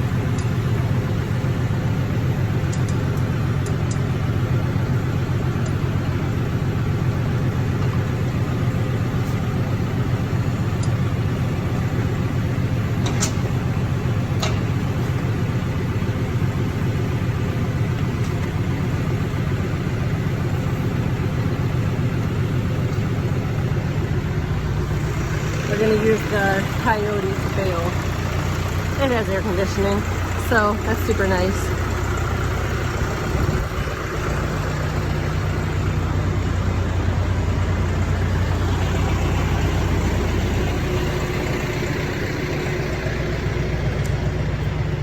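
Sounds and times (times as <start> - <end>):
tractor engine running: 0.0 - 45.0
sharp clicks: 2.7 - 4.1, 10.8 - 11.0.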